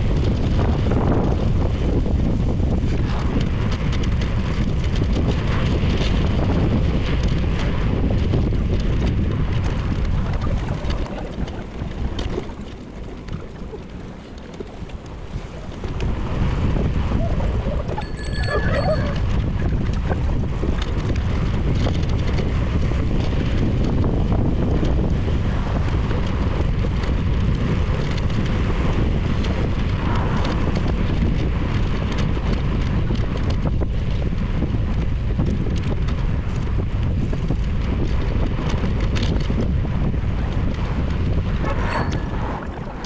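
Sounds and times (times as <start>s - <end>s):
wind rushing over microphone: 0.0s - 43.0s
road noise: 40.1s - 43.0s.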